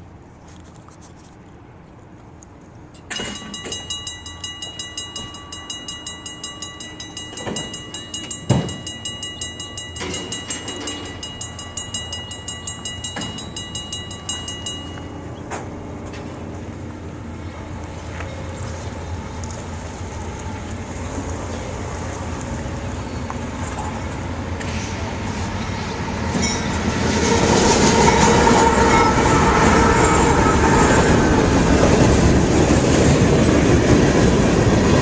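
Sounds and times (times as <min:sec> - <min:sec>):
freight train wheels rumbling: 0:02.8 - 0:35.0
rapid pulsing ringing bell: 0:03.0 - 0:15.5.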